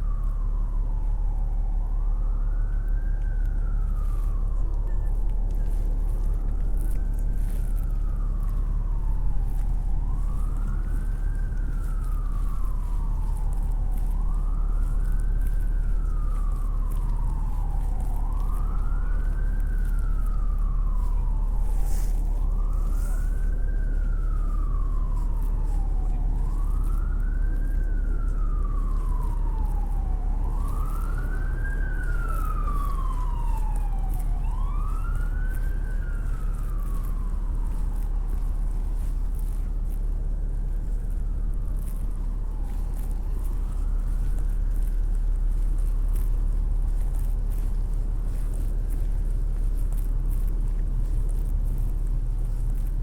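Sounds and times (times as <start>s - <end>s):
emergency siren wailing: 0.0s - 53.0s
low rumble of city traffic: 0.0s - 53.0s.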